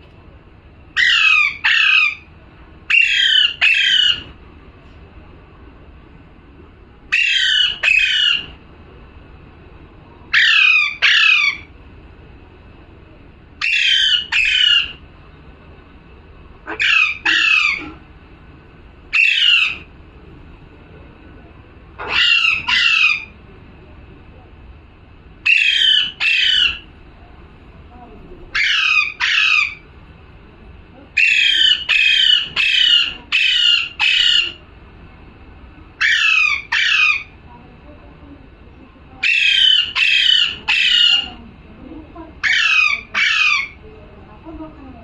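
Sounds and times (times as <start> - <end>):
parrot squawking: 0.9 - 2.3, 2.9 - 4.3, 7.1 - 8.6, 10.3 - 11.7, 13.6 - 15.0, 16.6 - 18.0, 19.1 - 19.9, 22.0 - 23.4, 25.4 - 26.9, 28.5 - 29.9, 31.2 - 34.6, 36.0 - 37.4, 39.2 - 41.4, 42.4 - 43.8.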